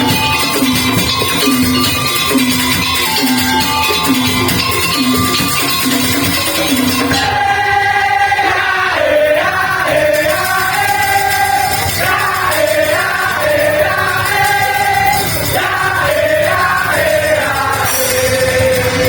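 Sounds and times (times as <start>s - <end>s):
melody of long held notes: 0.0s - 7.4s
percussion ensemble beat: 0.0s - 19.0s.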